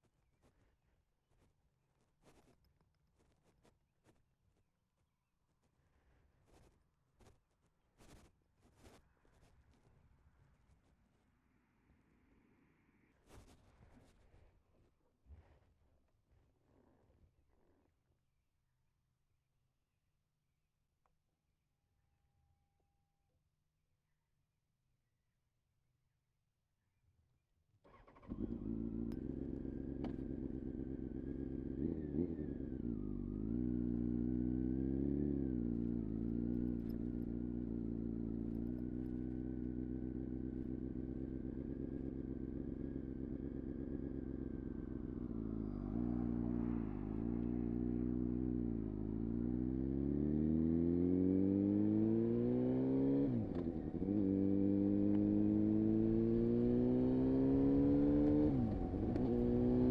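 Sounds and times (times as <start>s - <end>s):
motorcycle engine revving: 27.9s - 59.9s.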